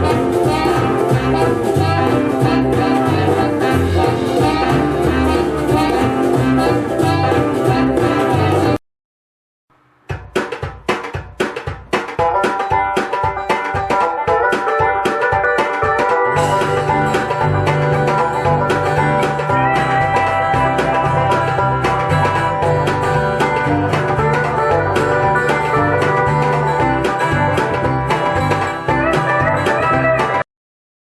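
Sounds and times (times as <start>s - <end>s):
bass line: 0.0s - 8.8s, 16.3s - 30.4s
drums: 0.0s - 8.8s, 9.7s - 30.5s
plucked strings: 0.0s - 8.8s, 10.1s - 30.4s.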